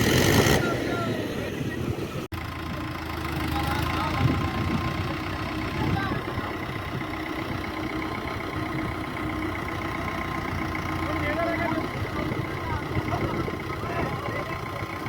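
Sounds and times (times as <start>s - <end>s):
tractor engine idling: 0.0s - 15.0s
voices in background: 0.5s - 7.7s, 10.6s - 15.0s.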